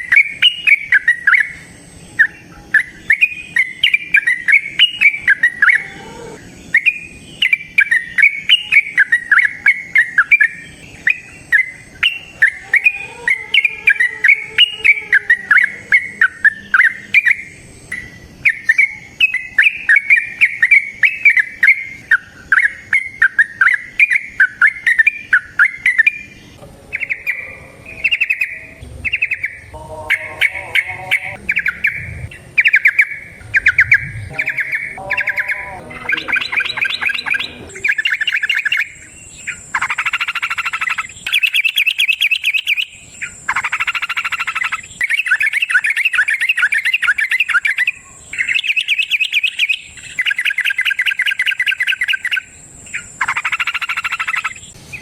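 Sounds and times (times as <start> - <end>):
bulbul singing: 0.0 - 55.0.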